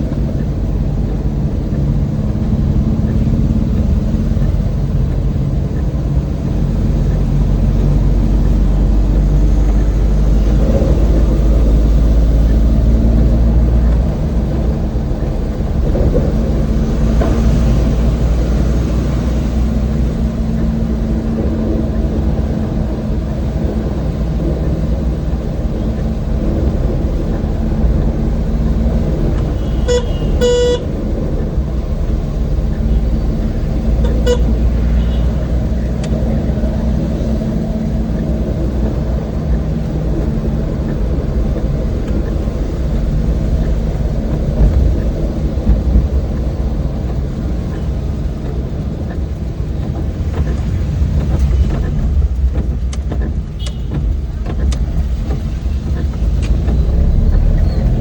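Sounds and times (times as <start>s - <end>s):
road rumble: 0.0s - 58.0s
van engine running: 0.0s - 58.0s
horn tooting: 29.4s - 30.9s, 34.0s - 35.5s, 53.6s - 54.2s.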